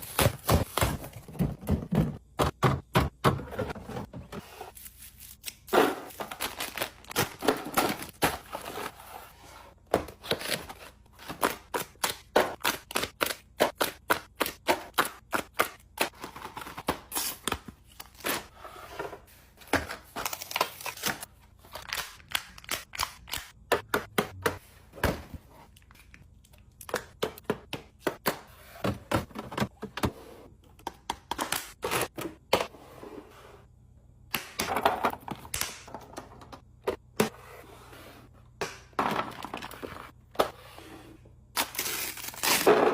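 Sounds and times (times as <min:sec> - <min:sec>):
containers clicking and knocking on shelves: 0:00.1 - 0:04.4, 0:26.8 - 0:32.7.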